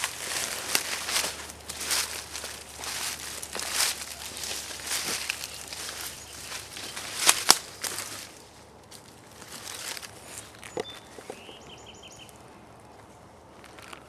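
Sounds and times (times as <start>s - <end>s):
footsteps through brush: 0.0s - 14.0s
bird call: 10.5s - 12.4s.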